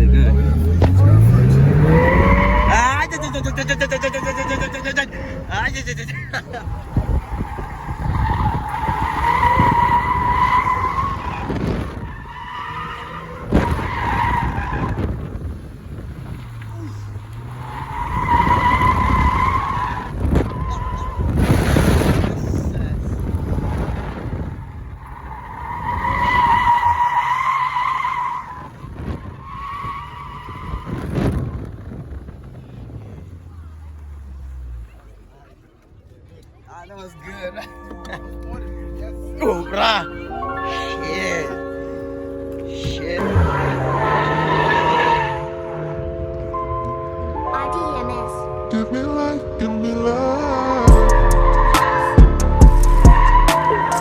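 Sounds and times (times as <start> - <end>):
tyres squealing: 0.0 - 31.6, 36.9 - 45.6, 52.9 - 54.0
car engine running hard: 0.0 - 36.3, 37.7 - 54.0.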